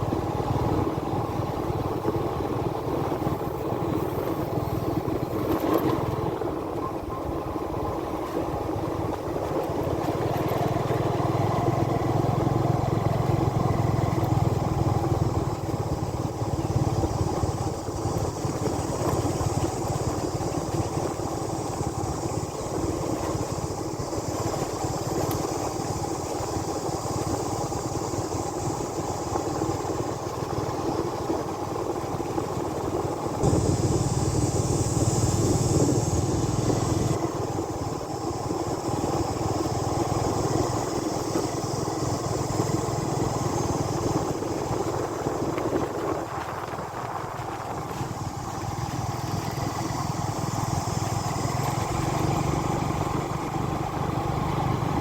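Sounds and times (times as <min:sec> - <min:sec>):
motorbike engine running: 0:00.0 - 0:55.0
road noise: 0:00.0 - 0:55.0
wind noise: 0:32.2 - 0:55.0.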